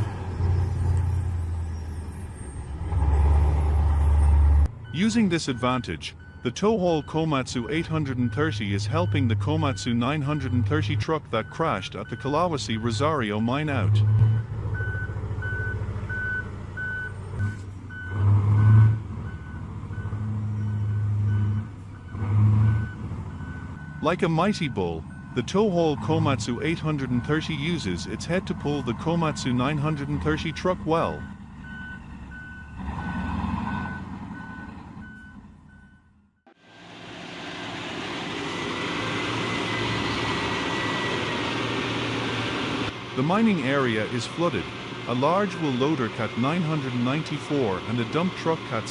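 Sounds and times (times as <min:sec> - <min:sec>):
diesel engine droning: 0:00.0 - 0:48.9
reversing alarm beeping: 0:04.8 - 0:27.8, 0:28.6 - 0:36.2, 0:39.0 - 0:41.8, 0:44.2 - 0:47.2.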